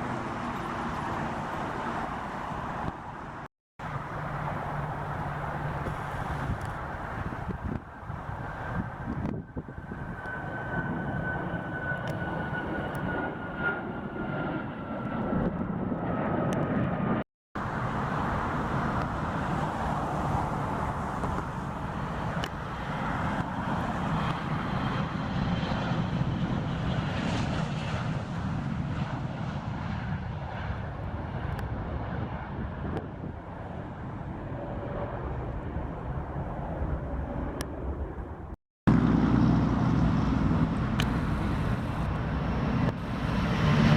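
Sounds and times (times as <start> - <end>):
high engine whine: 0.0 - 14.2, 17.6 - 27.5, 36.3 - 43.9
jet aircraft engines rumbling: 0.0 - 43.9.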